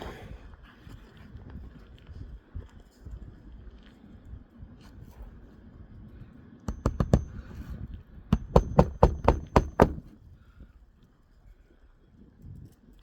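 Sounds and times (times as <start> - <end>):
hammer blows on a shingle roof: 6.7 - 10.2.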